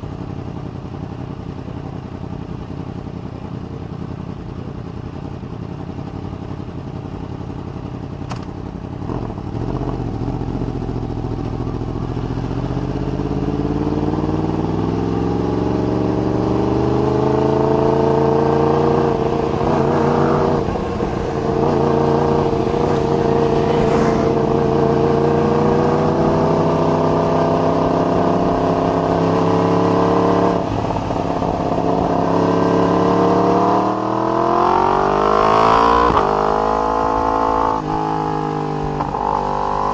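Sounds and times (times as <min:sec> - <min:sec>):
motorcycle engine pulling under load: 0:16.0 - 0:33.4.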